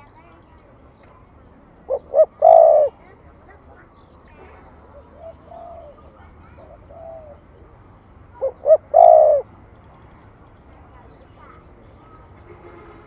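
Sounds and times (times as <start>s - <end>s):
dove cooing: 1.8s - 3.2s, 4.8s - 9.5s.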